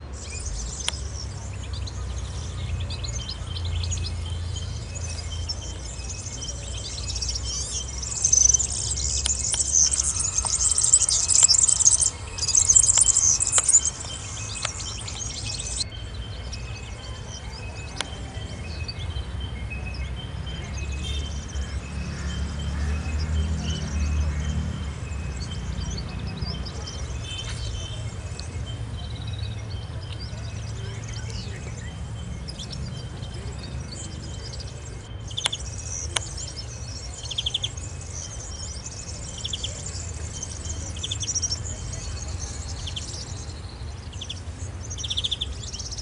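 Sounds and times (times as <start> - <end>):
small birds chirping: 0.0 - 46.0.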